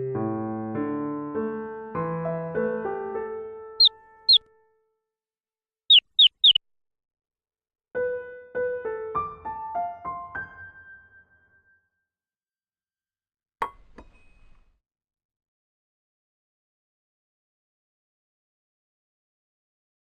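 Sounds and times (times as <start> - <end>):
quick high chirps: 5.9 - 6.6.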